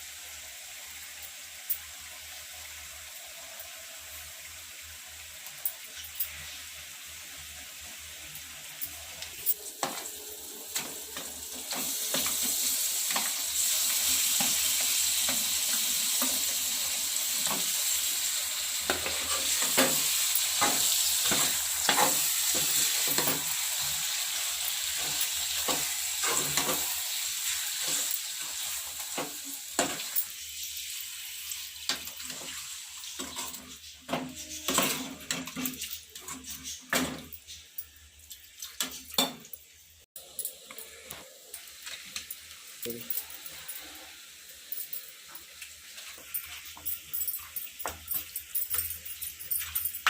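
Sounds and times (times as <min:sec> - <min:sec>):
food sizzling in hot oil: 0:00.0 - 0:48.8
spoon scraping a pan: 0:18.8 - 0:30.7, 0:31.5 - 0:37.7.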